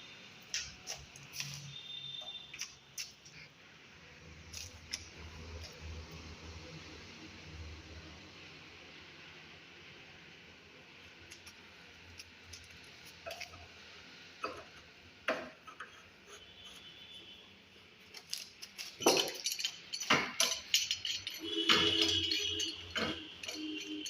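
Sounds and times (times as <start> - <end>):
hard objects clicking and clinking: 18.1 - 24.0.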